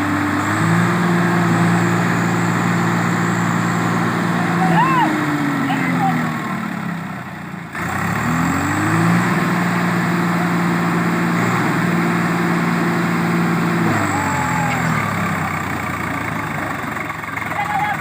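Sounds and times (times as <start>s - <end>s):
tractor diesel engine revving: 0.0s - 18.0s.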